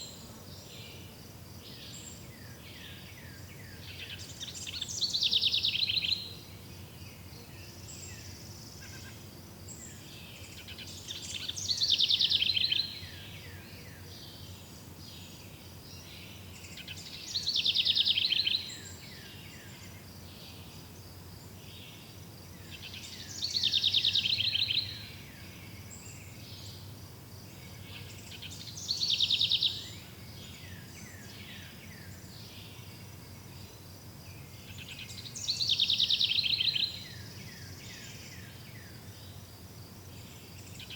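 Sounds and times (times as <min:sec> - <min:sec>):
insects chirring: 0:01.1 - 0:40.9
songbird singing trilled phrase: 0:22.8 - 0:25.0.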